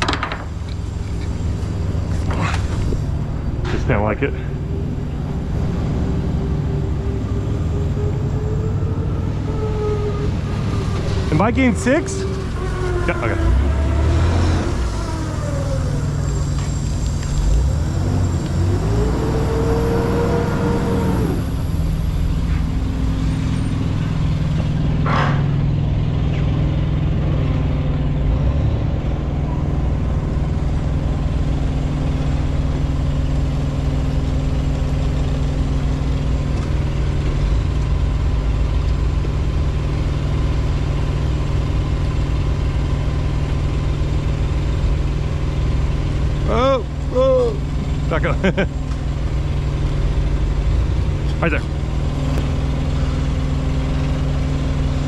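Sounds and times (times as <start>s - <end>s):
whine: 0.0s - 26.5s
heavy vehicle engine idling: 0.0s - 55.0s.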